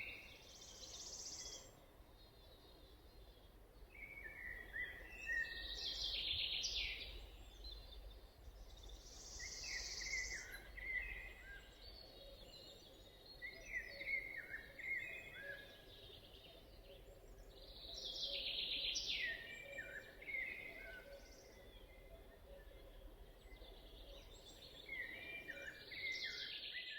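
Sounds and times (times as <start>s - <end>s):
songbirds singing: 0.0s - 26.9s.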